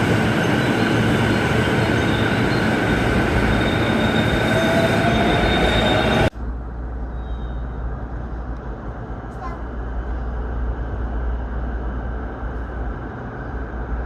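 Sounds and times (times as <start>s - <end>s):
high-pitched train whine: 0.0s - 8.1s
electric train rumbling: 0.0s - 14.0s.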